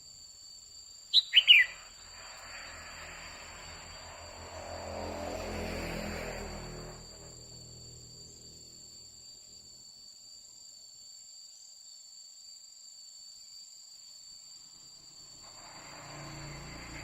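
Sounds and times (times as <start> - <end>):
crickets trilling: 0.0 - 17.0
soft rush of noise: 1.7 - 8.2, 15.3 - 17.0.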